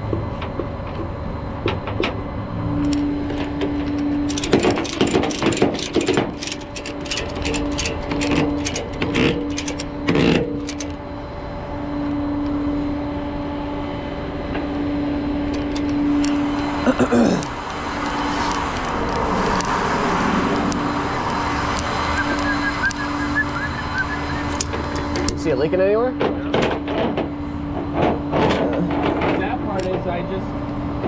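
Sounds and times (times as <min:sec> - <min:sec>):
truck engine humming: 0:00.0 - 0:28.3
metallic clanks and rattles: 0:02.8 - 0:11.0, 0:15.4 - 0:16.4, 0:26.2 - 0:30.1.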